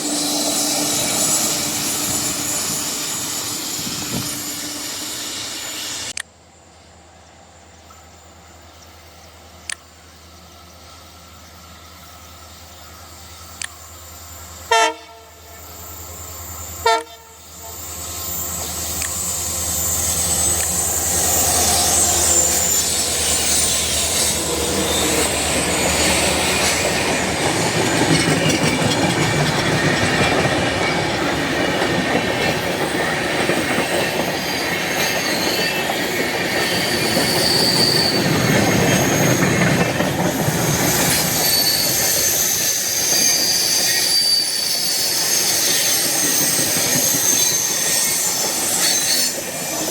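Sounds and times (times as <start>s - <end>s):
thin wheel squeal: 0.0s - 6.2s, 15.5s - 27.2s, 33.8s - 49.9s
diesel locomotive engine drone: 0.0s - 49.9s
train horn blasts: 14.6s - 15.7s, 16.8s - 17.9s, 19.3s - 25.8s
train wheels clattering on rails: 18.2s - 49.9s.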